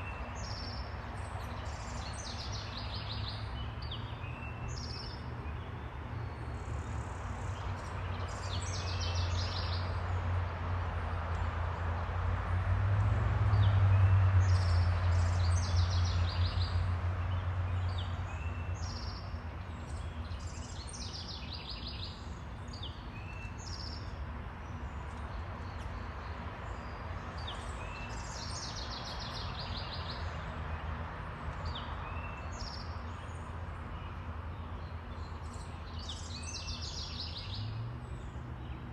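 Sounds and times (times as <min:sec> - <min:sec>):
small birds chirping: 0:31.5 - 0:38.9.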